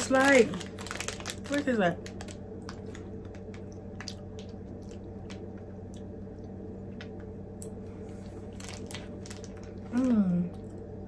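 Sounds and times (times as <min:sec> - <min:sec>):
steady low hum: 0:00.0 - 0:11.0
person chewing chocolate: 0:02.2 - 0:10.8.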